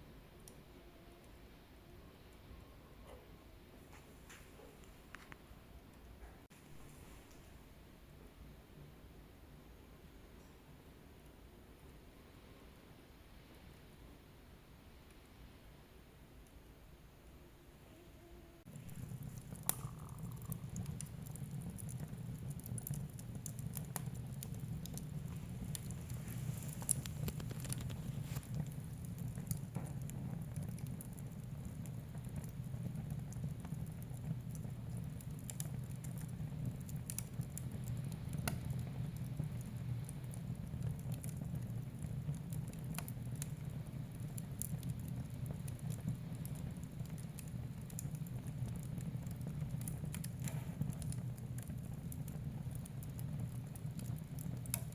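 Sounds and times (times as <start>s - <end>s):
fire low rumble: 18.6s - 54.9s
wood fire crackling and popping: 18.7s - 54.9s.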